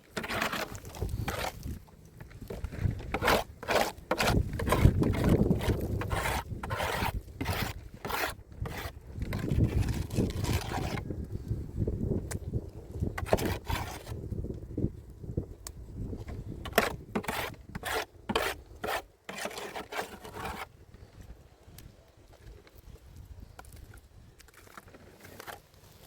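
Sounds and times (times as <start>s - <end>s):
hand tool scraping soil and stones: 0.0s - 11.2s, 13.0s - 14.2s, 16.3s - 20.8s, 23.6s - 26.0s.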